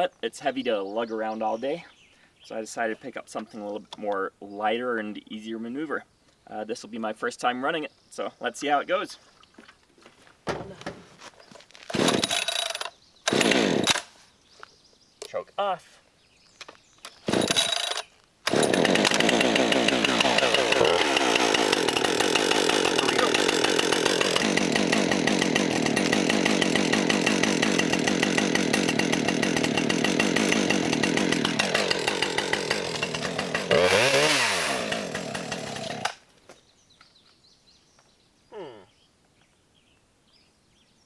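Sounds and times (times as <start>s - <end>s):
chainsaw engine starting and revving: 11.9s - 14.2s, 17.1s - 36.3s.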